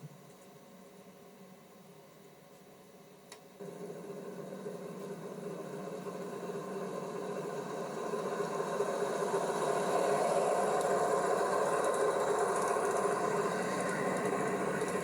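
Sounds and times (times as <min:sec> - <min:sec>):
train clattering: 0:03.6 - 0:15.0.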